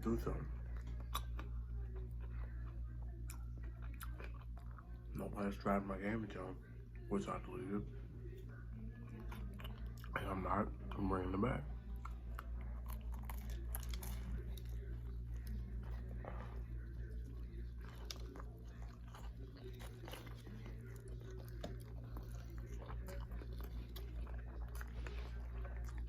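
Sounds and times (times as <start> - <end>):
steady low hum: 0.0 - 26.0
biting and chewing sandwich: 0.1 - 5.6, 11.7 - 26.0.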